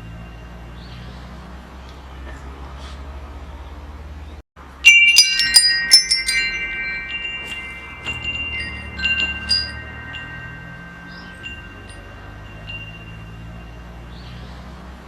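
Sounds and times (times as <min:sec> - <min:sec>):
metal wind chime ringing: 0:00.0 - 0:01.2, 0:04.7 - 0:14.8
low wind rumble: 0:03.3 - 0:15.0.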